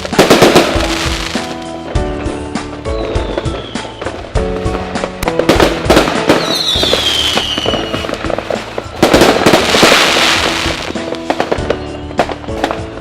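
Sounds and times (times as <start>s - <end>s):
background music: 0.0s - 13.0s
fireworks bangs and crackling: 0.0s - 13.0s
firework whistle falling in pitch: 2.2s - 4.4s, 6.4s - 8.1s.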